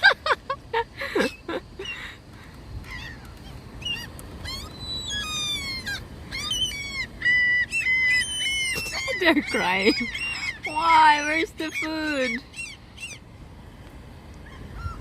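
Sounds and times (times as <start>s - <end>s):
gulls calling: 0.0s - 13.3s, 14.4s - 15.0s.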